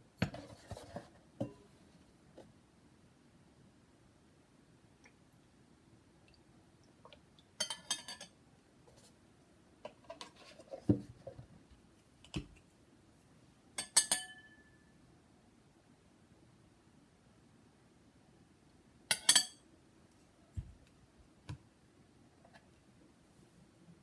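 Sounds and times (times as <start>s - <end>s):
metal spoon clinking on glass bowl: 7.6s - 8.4s, 13.8s - 14.8s, 19.1s - 19.6s.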